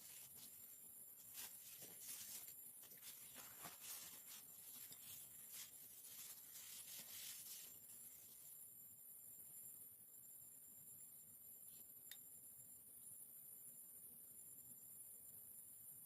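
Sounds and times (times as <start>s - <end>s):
faint ticks and rustles: 0.0s - 8.7s.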